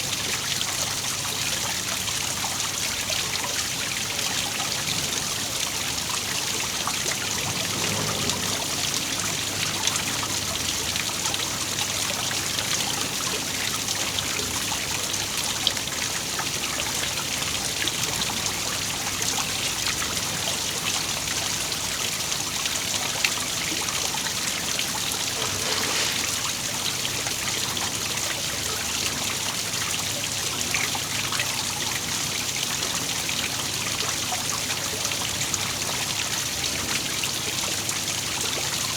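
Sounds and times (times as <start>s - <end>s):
waterfall splashing: 24.3s - 27.4s.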